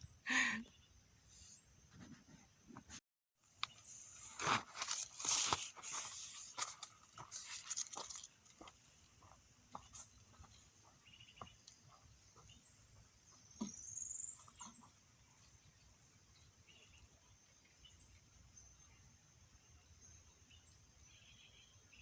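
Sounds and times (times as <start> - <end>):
crunching and pattering: 4.2 - 12.6.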